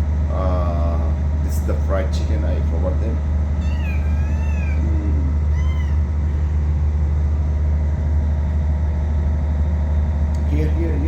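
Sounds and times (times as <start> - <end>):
low hum: 0.0 - 11.0
kitten meowing: 3.6 - 6.8.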